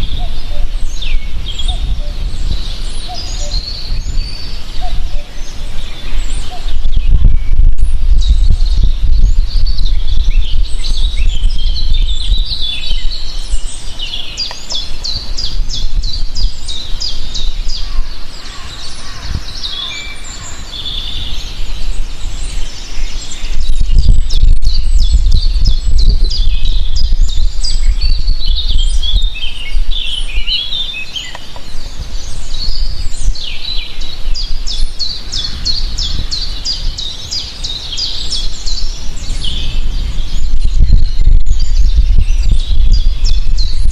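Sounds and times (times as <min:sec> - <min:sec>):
steady low rumble: 0:00.0 - 0:30.8, 0:38.2 - 0:43.9
rapid bird trills: 0:00.0 - 0:43.9
songbirds chirping and singing: 0:00.0 - 0:43.9.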